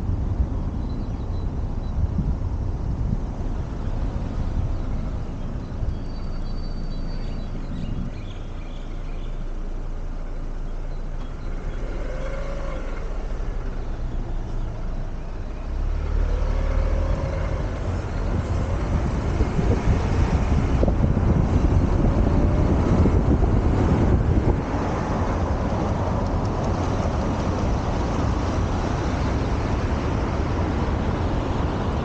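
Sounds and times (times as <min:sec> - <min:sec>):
traffic rumble: 0:00.0 - 0:32.0.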